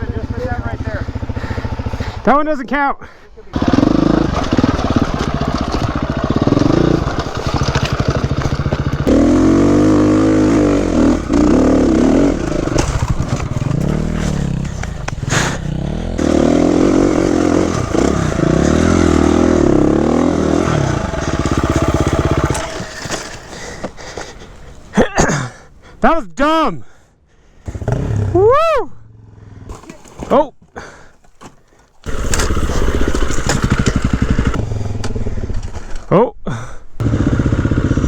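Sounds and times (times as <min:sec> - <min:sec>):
dirt bike engine revving: 0:00.0 - 0:02.6, 0:03.5 - 0:23.9, 0:27.7 - 0:30.0, 0:32.0 - 0:35.9, 0:37.0 - 0:38.0.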